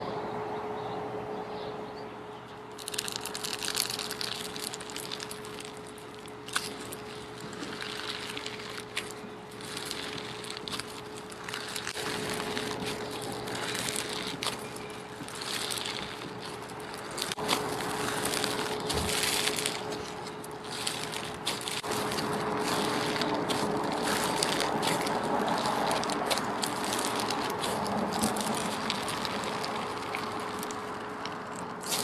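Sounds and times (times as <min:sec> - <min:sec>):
faint steady hum: 0:00.0 - 0:32.0
slime squished by hand: 0:02.8 - 0:32.0.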